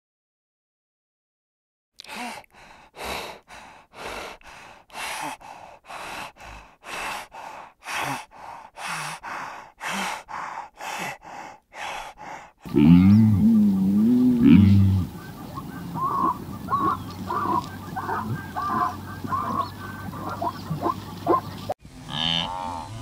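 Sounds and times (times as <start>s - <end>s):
hyenas huffing breaths: 2.2s - 21.8s
low grunts: 12.6s - 15.2s.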